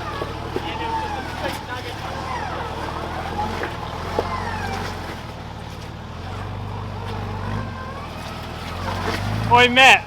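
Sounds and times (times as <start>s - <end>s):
faint high gliding whistles: 0.0s - 5.4s
engine running at low revs: 0.0s - 10.0s.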